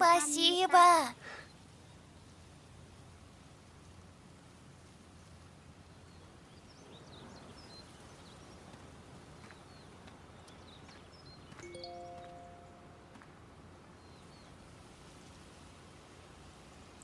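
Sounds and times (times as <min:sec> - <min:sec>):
clear ringing tones: 0:11.6 - 0:13.1.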